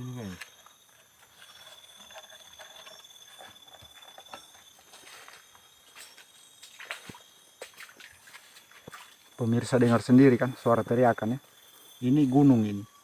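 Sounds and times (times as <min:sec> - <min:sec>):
high-pitched insect trill: 0:00.0 - 0:13.0
footsteps on forest floor: 0:01.0 - 0:09.5.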